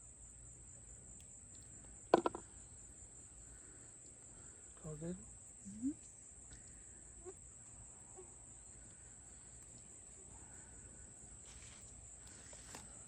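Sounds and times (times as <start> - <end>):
insect trilling: 1.5 - 13.0
soft rustles: 11.4 - 13.0.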